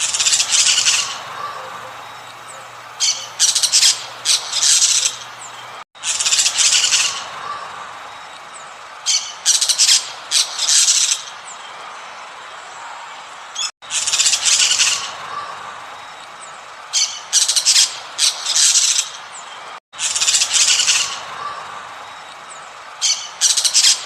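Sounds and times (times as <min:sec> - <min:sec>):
bird chirping and squawking: 0:00.0 - 0:07.7
background hiss: 0:00.0 - 0:24.0.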